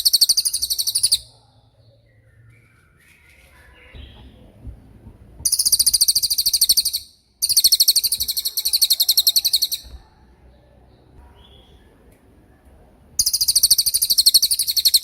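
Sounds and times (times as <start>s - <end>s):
bird singing high trills: 0.0s - 1.3s, 5.4s - 9.9s, 13.2s - 15.0s.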